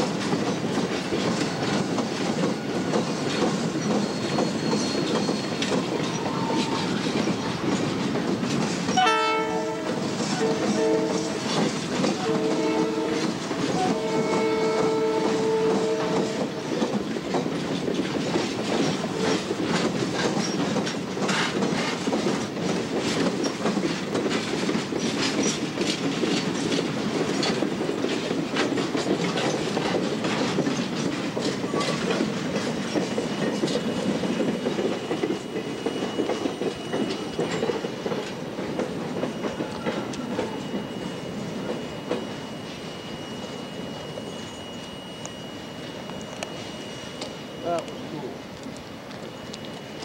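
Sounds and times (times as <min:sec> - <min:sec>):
wheels clicking over rail joints: 0:00.0 - 0:42.4
freight train rolling past: 0:00.0 - 0:50.0
thin wheel squeal: 0:03.8 - 0:06.3.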